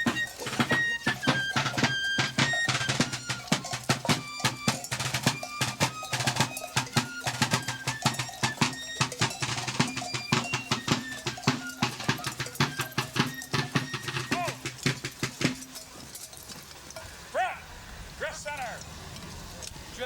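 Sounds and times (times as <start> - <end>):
drum-led music: 0.0 - 16.9.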